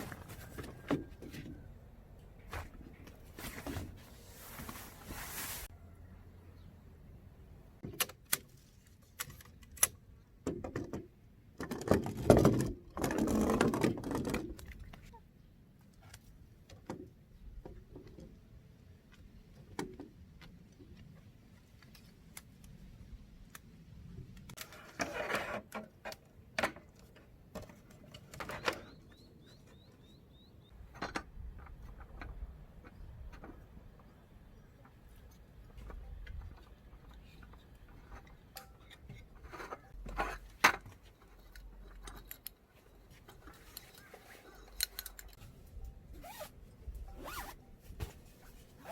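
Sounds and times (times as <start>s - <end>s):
camping gear clicks and clatter: 0.0s - 1.7s, 34.9s - 48.9s
rustling scrape: 2.5s - 5.7s, 47.2s - 48.9s
faint high bird chirps: 28.5s - 30.8s.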